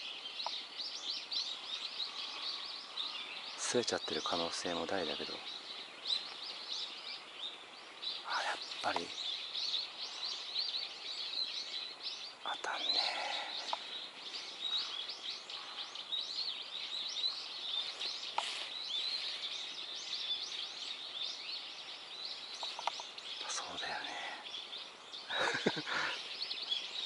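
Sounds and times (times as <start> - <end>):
small birds chirping: 0.0 - 27.0
faint click: 0.4 - 0.6, 13.6 - 13.9, 18.2 - 18.6, 22.6 - 23.1.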